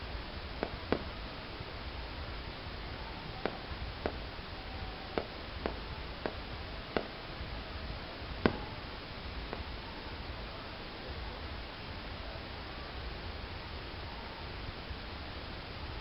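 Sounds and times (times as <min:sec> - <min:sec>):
background hiss: 0:00.0 - 0:16.0
distant fireworks bursting: 0:00.2 - 0:10.2.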